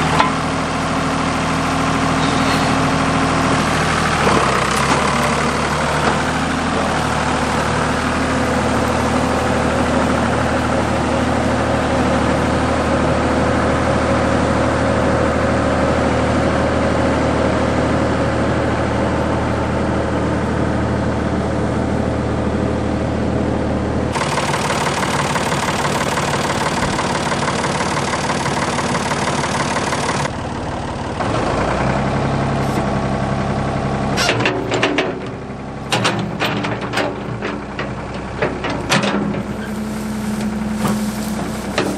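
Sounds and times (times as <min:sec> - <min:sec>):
machine engine running: 0:00.0 - 0:13.6, 0:24.1 - 0:41.9.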